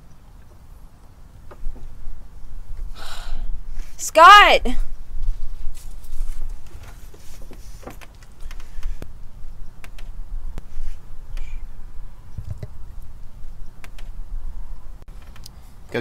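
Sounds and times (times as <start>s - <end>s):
steady low rumble: 0.0s - 4.0s, 8.3s - 15.1s.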